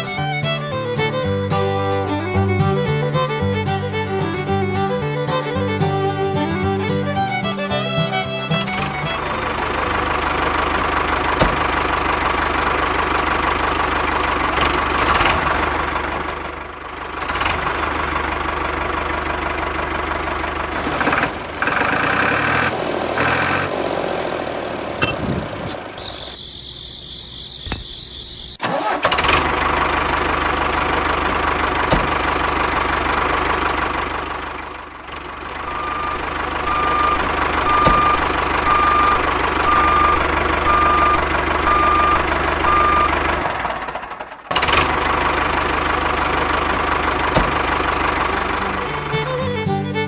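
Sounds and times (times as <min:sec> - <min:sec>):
tractor engine running: 0:00.0 - 0:50.0
evenly spaced beeps: 0:26.0 - 0:28.6, 0:35.7 - 0:43.2.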